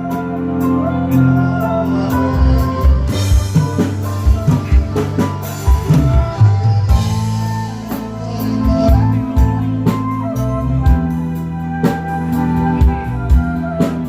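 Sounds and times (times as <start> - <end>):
loud music with drums and bass: 0.0 - 14.0.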